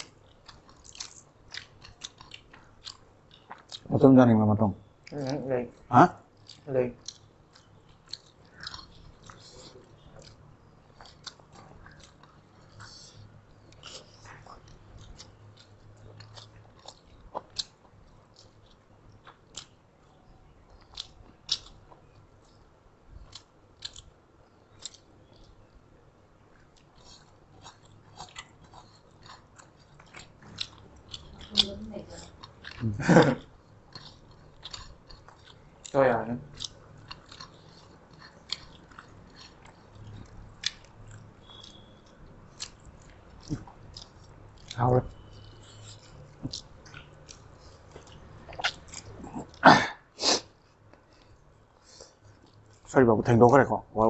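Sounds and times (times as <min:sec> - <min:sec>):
soft chewing: 0:00.0 - 0:04.0, 0:04.8 - 0:49.6, 0:50.4 - 0:53.8.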